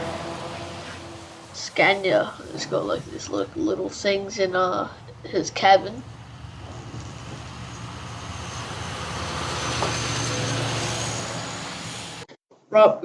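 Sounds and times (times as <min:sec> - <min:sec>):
truck driving past: 0:00.0 - 0:12.3.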